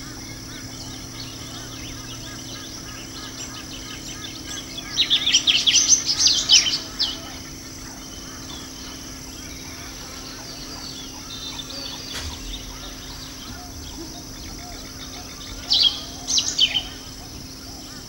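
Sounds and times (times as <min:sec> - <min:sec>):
birds chirping and calling: 0:00.0 - 0:18.0
sharp high-pitched bird calls: 0:00.4 - 0:18.0.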